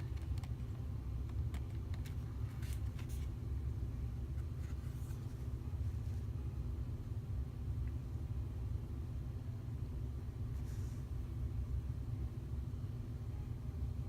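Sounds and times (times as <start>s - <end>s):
cards tapping and rustling: 0.0s - 3.4s
low background rumble: 0.0s - 14.0s.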